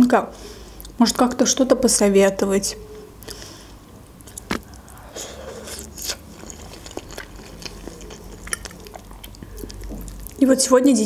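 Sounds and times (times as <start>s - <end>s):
person chewing: 3.2s - 10.4s
mouth clicks: 4.2s - 10.2s.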